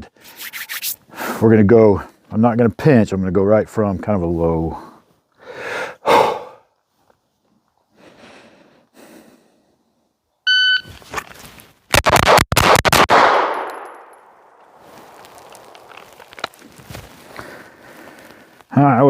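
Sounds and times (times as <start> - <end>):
shot timer beep: 10.5 - 10.9
pistol shots: 11.9 - 14.5.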